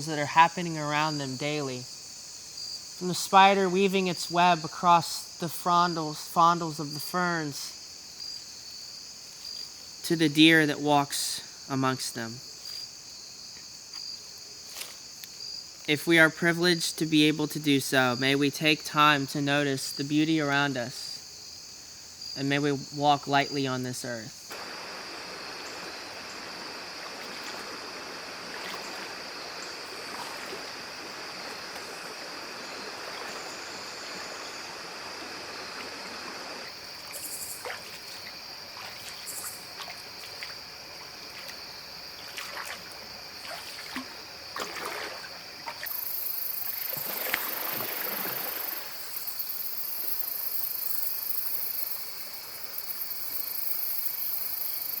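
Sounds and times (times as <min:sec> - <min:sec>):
high insect trill: 0:00.0 - 0:55.0
creek water trickling: 0:23.1 - 0:55.0
higher-pitched insect buzz: 0:24.3 - 0:55.0
small water splashes: 0:24.5 - 0:49.1.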